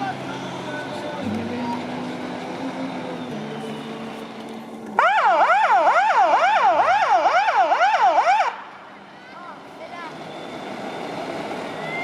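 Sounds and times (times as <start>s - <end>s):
low engine hum: 0.0s - 5.2s, 8.6s - 12.0s
fire engine siren yelping: 5.0s - 8.7s, 10.1s - 12.0s.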